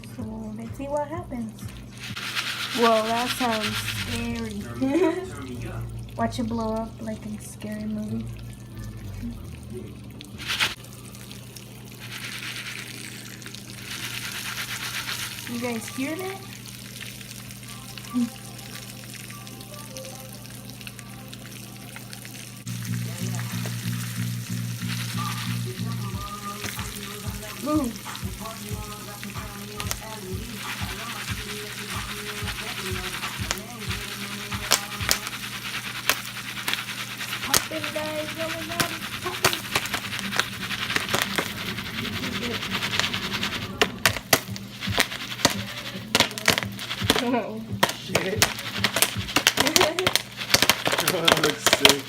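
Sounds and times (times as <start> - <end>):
oil sizzling in a pan: 1.0 - 9.3, 10.3 - 52.0
pulsing low hum: 22.7 - 36.4, 37.0 - 46.1.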